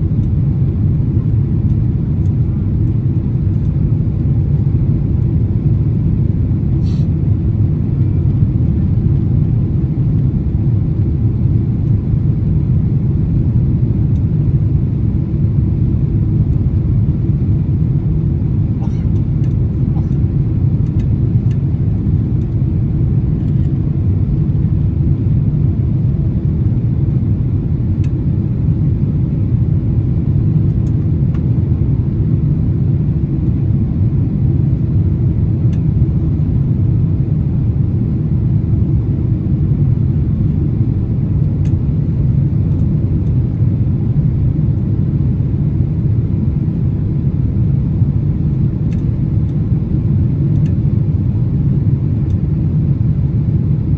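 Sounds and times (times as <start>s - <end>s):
jet engines rumbling: 14.4s - 25.0s.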